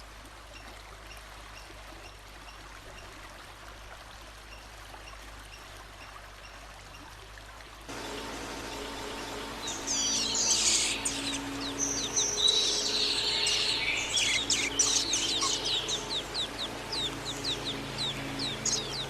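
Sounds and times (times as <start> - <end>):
songbird singing: 7.9 - 19.0.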